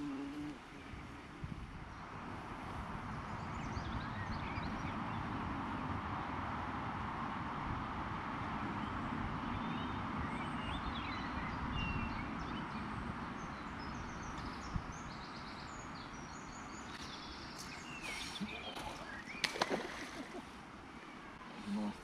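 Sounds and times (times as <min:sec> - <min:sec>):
outdoor background hiss: 0:00.0 - 0:22.0
small birds chirping: 0:08.8 - 0:22.0.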